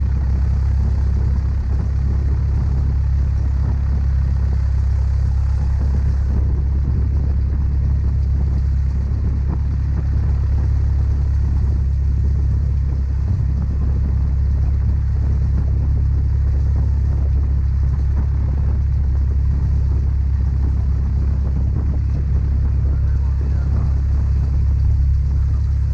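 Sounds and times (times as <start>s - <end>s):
propeller plane engine droning: 0.0s - 25.9s.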